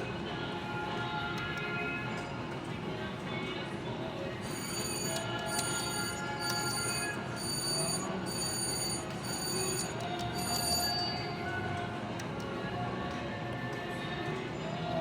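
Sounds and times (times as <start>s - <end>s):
electronic chimes: 4.4s - 11.4s
held beeping tones: 4.4s - 11.4s
casino floor din: 4.4s - 11.6s
slot machine spinning: 4.4s - 11.7s.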